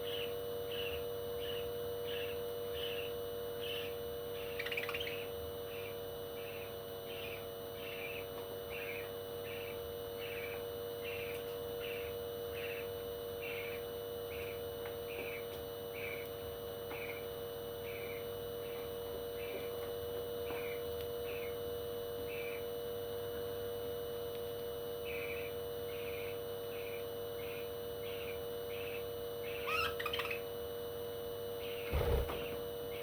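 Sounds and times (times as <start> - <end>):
loud parrot call: 29.5 - 30.4
steady hum: 30.3 - 33.0.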